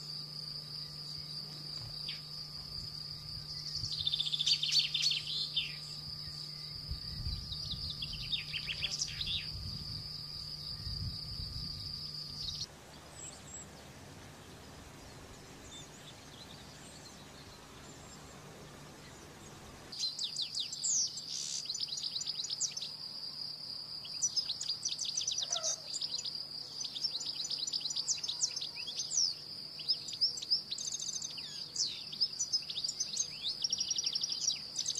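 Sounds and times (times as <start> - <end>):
canaries singing: 3.5 - 9.6, 24.2 - 34.9.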